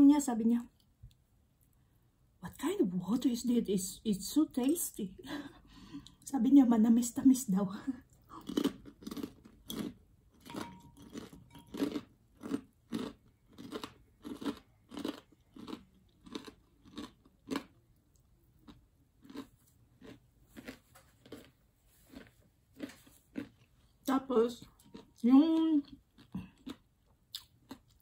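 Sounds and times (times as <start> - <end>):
close-up chewing food: 8.0 - 24.1, 24.7 - 28.0.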